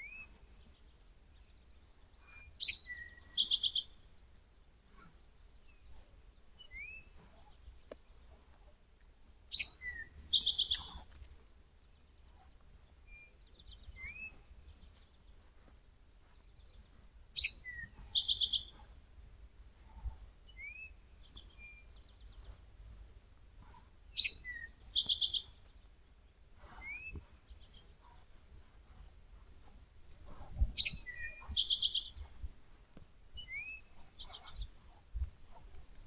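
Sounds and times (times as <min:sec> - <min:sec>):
songbird whistling and trilling: 0:00.0 - 0:00.9, 0:02.2 - 0:04.0, 0:06.6 - 0:07.7, 0:09.5 - 0:11.0, 0:12.8 - 0:15.1, 0:17.4 - 0:18.8, 0:20.5 - 0:22.2, 0:24.2 - 0:25.6, 0:26.8 - 0:27.9, 0:30.8 - 0:32.2, 0:33.4 - 0:34.7.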